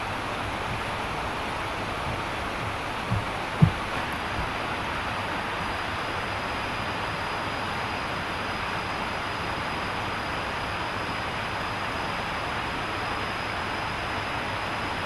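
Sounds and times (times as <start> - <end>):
river flowing swiftly: 0.0 - 5.4.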